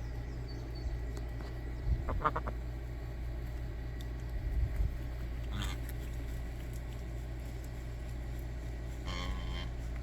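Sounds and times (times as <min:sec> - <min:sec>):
steady low hum: 0:00.0 - 0:10.0
ducks or geese calling: 0:01.8 - 0:02.8, 0:05.3 - 0:06.4, 0:08.8 - 0:10.0.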